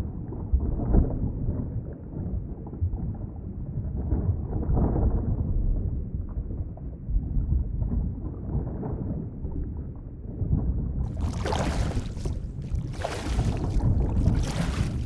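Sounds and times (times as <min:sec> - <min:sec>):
hissing water: 0:11.1 - 0:15.0
muffled underwater rumbling wash: 0:11.1 - 0:15.0.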